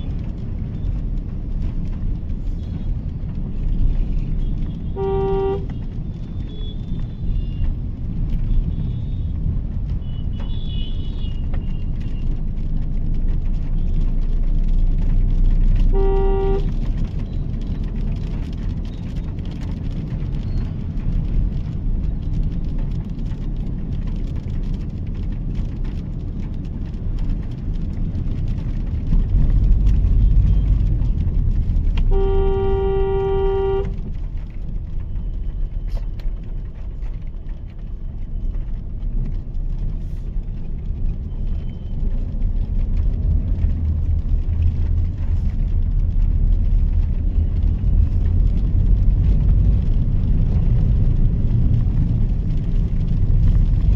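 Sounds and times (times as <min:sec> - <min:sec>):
road and engine rumble: 0:00.0 - 0:53.9
car horn: 0:04.6 - 0:05.9, 0:15.8 - 0:16.8, 0:32.0 - 0:34.1.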